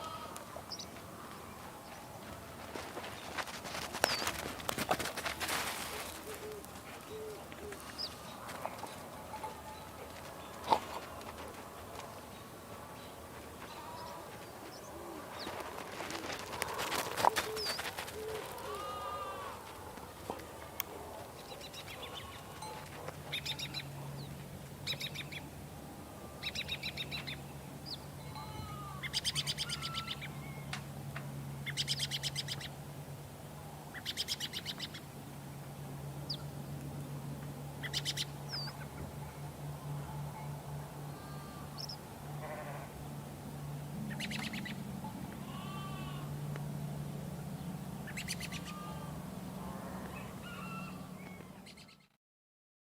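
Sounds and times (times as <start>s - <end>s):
sheep bleating: 0.0s - 0.5s, 18.6s - 19.7s, 28.2s - 29.1s, 41.1s - 41.8s, 42.4s - 43.0s, 45.3s - 46.4s, 48.6s - 51.1s
low hum: 0.0s - 52.2s
trilled bird calls: 37.8s - 39.0s, 44.0s - 46.2s, 48.0s - 52.1s.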